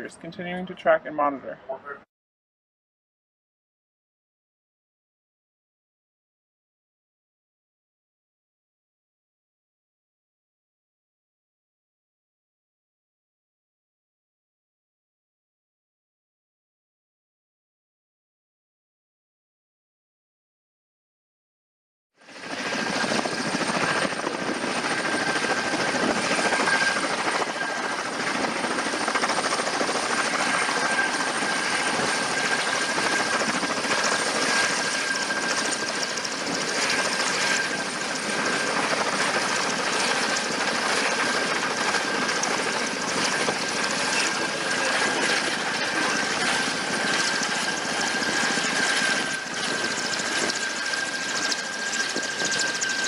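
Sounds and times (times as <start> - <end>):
helicopter rotor and engine: 0.0 - 2.0, 22.2 - 53.0
high steady whine: 22.3 - 53.0.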